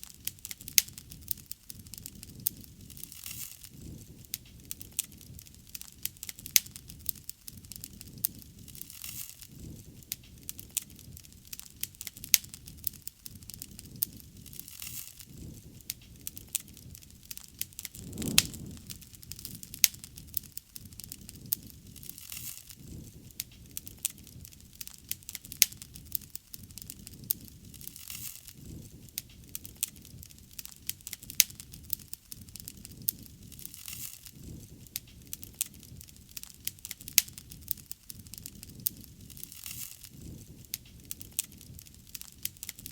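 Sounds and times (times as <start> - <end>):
bonfire crackling and popping: 0.0 - 42.9
rush of flame: 17.8 - 20.2.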